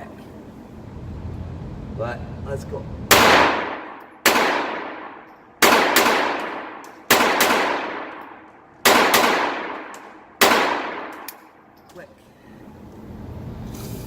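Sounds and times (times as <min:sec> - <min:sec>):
pistol shots ringing out: 0:03.1 - 0:11.6.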